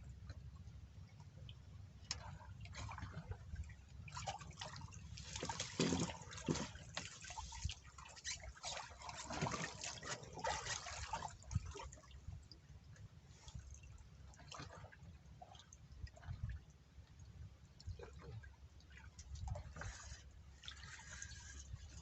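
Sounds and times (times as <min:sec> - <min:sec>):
water splashing and dripping: 0:02.0 - 0:12.5.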